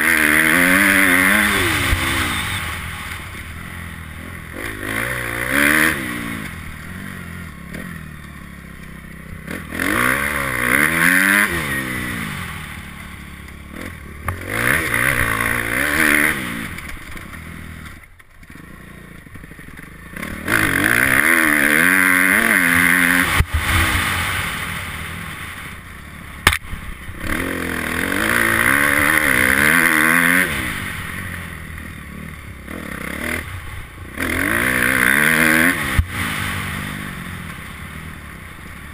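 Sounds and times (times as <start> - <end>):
motocross bike engine revving: 0.0 - 38.9
sharp knock: 26.4 - 26.7.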